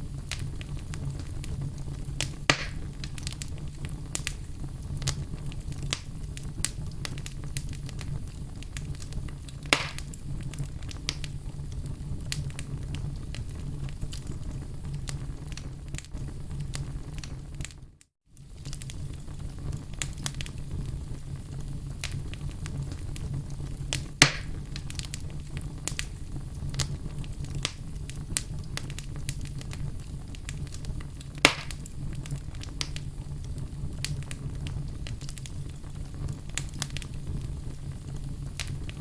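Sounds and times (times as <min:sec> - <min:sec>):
burning logs popping: 0:00.0 - 0:39.0
fire crackling in a fireplace: 0:00.0 - 0:39.0.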